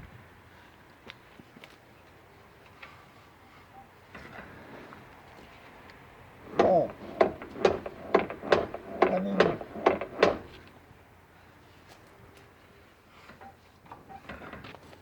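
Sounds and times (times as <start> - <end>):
sharp ringing knocks: 6.5 - 10.6.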